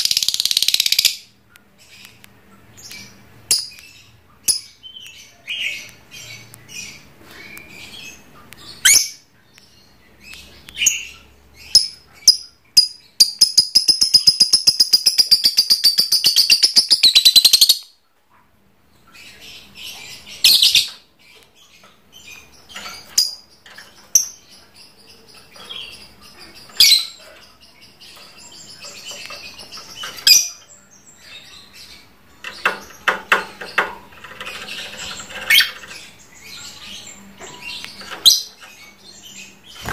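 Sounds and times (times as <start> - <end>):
lovebird chirping and squawking: 2.8 - 9.2, 10.3 - 17.9, 19.3 - 21.0, 22.2 - 32.1, 34.2 - 37.0.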